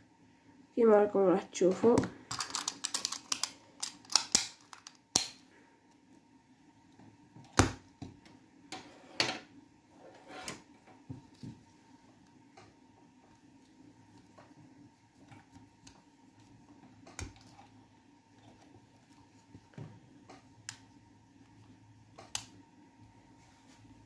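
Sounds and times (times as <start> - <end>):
plastic parts clicking: 2.3 - 5.4.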